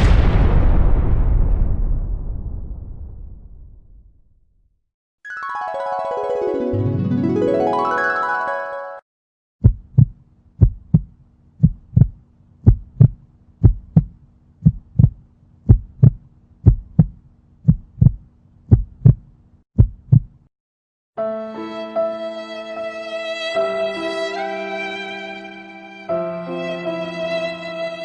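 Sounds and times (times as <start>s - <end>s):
violin music: 5.3s - 9.0s, 21.2s - 28.0s
heartbeat thumps: 9.6s - 20.5s.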